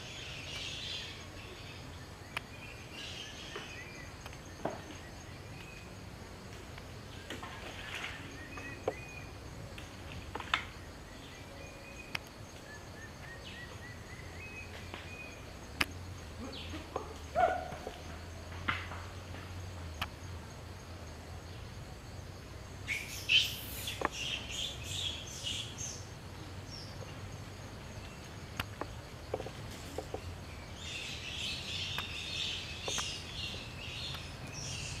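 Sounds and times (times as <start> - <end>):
birds chirping: 0.0 - 6.0, 7.1 - 9.4, 22.8 - 27.3, 27.9 - 35.0
faint clicks: 28.0 - 30.3, 31.9 - 32.2, 32.8 - 34.6.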